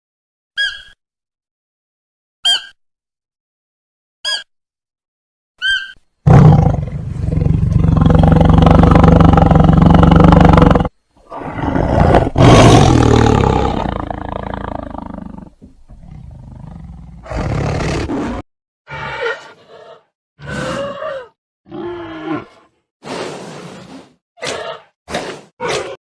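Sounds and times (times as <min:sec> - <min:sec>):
large animal roaring: 0:06.3 - 0:18.1, 0:18.9 - 0:22.7.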